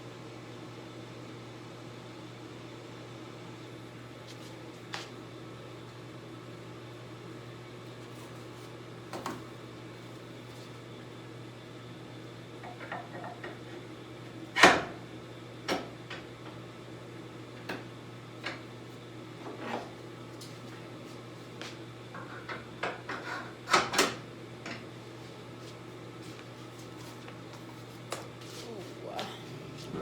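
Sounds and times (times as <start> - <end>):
steady low hum: 26.3 - 30.0.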